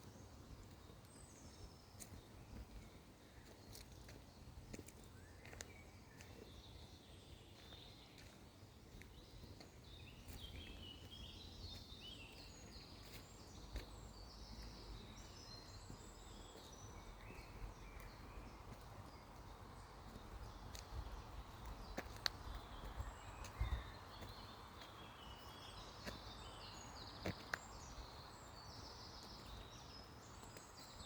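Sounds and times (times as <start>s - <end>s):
small bird singing: 0.0s - 31.0s.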